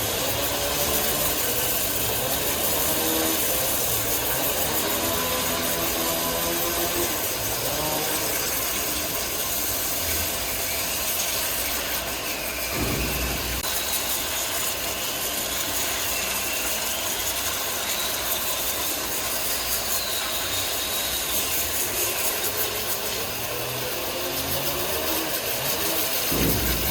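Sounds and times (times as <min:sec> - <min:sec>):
woodworking machinery clattering: 0:00.0 - 0:14.4, 0:25.4 - 0:26.9
high machine whine: 0:00.0 - 0:24.0, 0:25.9 - 0:26.9
low thud: 0:12.7 - 0:13.7, 0:26.3 - 0:26.9.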